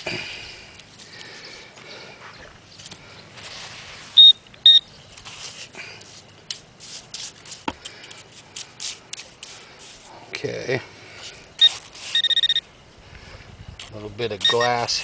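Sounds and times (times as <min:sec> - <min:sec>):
metal detector beeps: 0:04.2 - 0:04.9, 0:11.6 - 0:12.7, 0:14.4 - 0:15.0.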